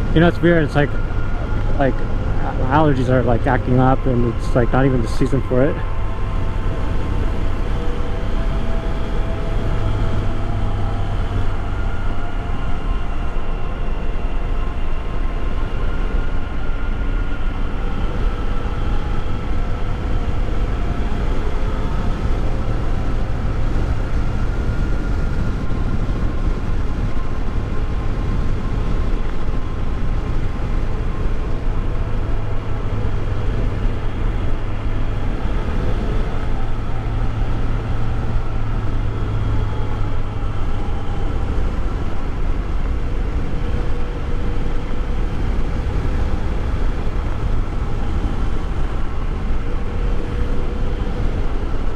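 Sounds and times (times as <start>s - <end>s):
motorcycle engine cruising: 0.0s - 51.9s
wind rush on microphone: 0.0s - 51.9s.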